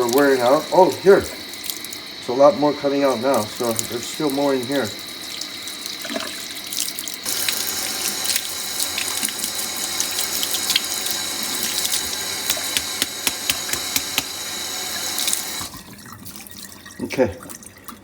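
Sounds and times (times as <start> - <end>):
water running from faucet into sink: 0.0 - 18.0.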